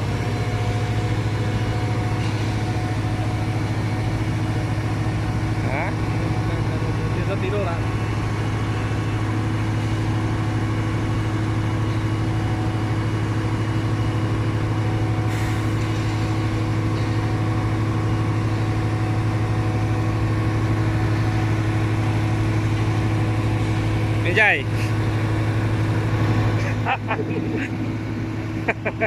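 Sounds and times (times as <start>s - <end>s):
diesel truck engine running: 0.0s - 29.0s.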